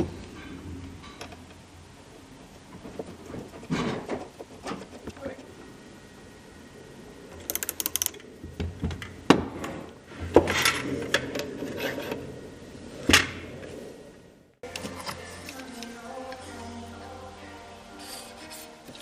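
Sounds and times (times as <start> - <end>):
tool clicks: 7.5 - 8.2
music: 14.6 - 19.0.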